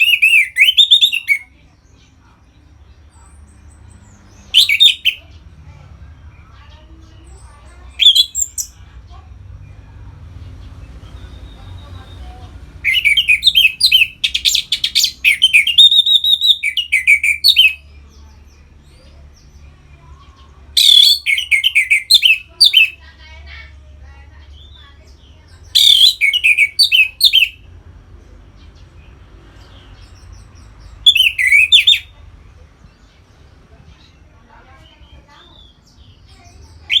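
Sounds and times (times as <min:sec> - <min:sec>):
thrush singing whistled phrases: 0:00.0 - 0:01.5, 0:04.5 - 0:05.2, 0:08.0 - 0:08.8, 0:12.8 - 0:17.8, 0:20.8 - 0:23.0, 0:25.7 - 0:27.6, 0:31.0 - 0:32.1, 0:36.7 - 0:37.0.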